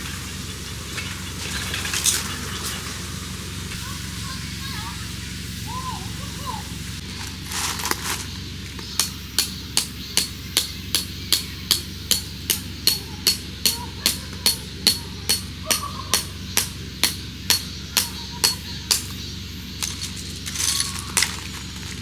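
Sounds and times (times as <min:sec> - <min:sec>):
hammer striking metal: 0:08.9 - 0:19.2.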